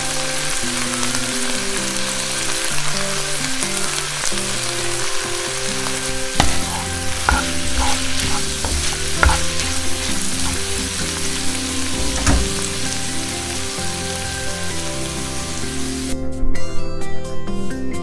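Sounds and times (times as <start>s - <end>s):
food sizzling in a frying pan: 0.0s - 16.2s
music: 0.0s - 18.0s
utensil knocking against pan: 6.4s - 11.1s.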